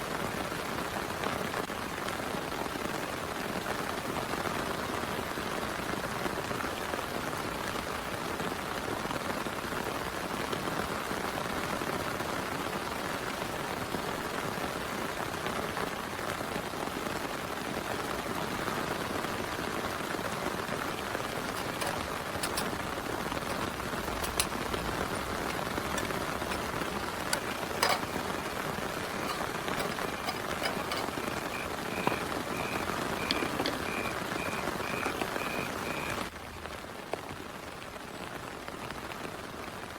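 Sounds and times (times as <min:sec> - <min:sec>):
frog calling: 0:29.8 - 0:36.2.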